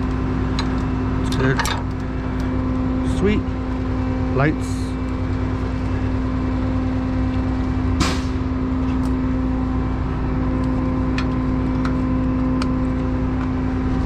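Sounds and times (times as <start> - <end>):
sharp clank: 8.0 - 8.5.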